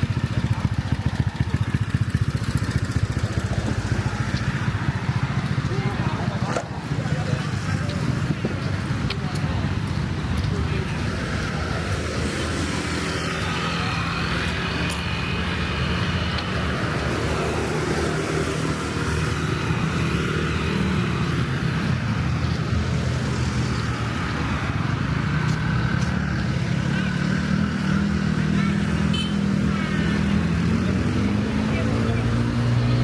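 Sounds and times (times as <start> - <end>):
car and motorbike engines passing: 0.0 - 33.0
tyres on road: 0.0 - 33.0.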